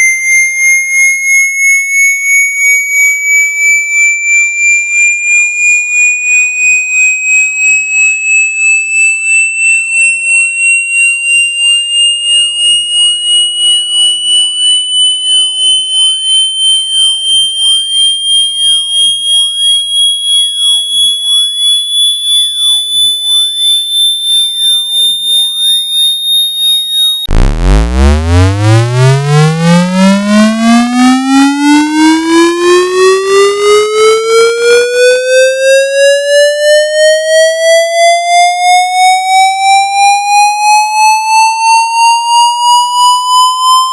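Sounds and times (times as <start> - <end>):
pulsing electronic tone sweep: 13.2 - 35.2.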